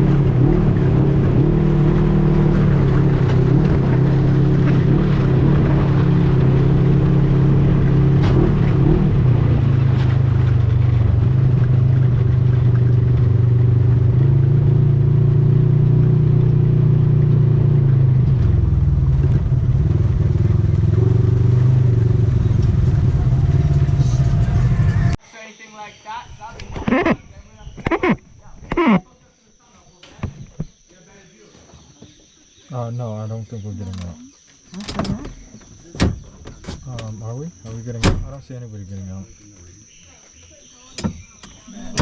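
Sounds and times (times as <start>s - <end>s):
atv engine running: 0.0s - 25.2s.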